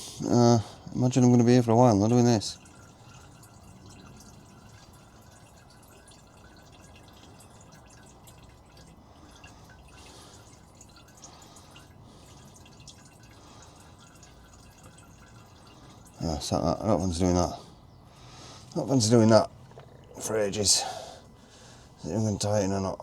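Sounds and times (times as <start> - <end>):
fuel dripping and trickling: 0.0 - 23.0
drip ticks: 2.1 - 16.8.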